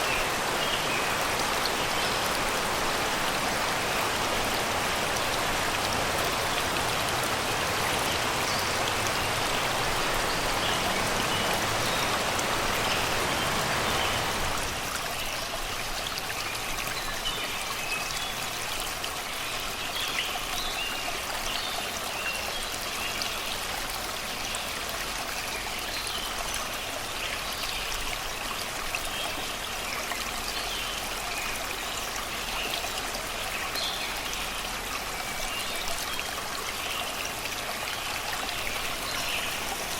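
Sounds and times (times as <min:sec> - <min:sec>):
river water babbling over rocks: 0:00.0 - 0:39.9.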